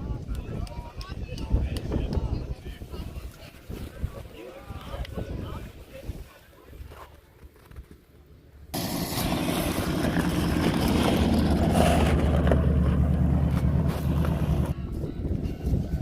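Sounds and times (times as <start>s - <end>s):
car engine with deep exhaust: 8.8s - 14.8s.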